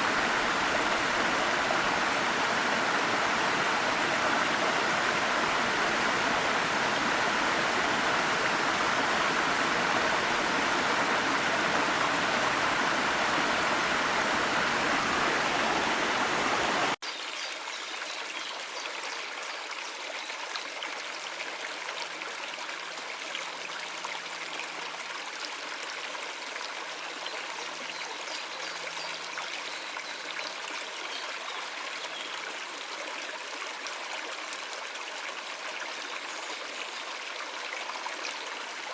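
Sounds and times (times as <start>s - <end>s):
waterfall and stream rushing: 0.0s - 17.5s
trickle of small stream: 0.0s - 38.9s.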